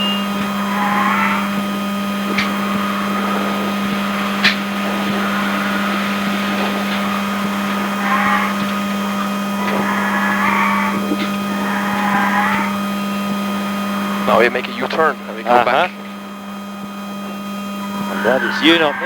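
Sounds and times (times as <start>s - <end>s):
tire squeals sliding in pitch: 0.0s - 12.8s, 17.6s - 19.0s
electric drivetrain hum and whine: 0.0s - 19.0s
road noise: 0.0s - 19.0s.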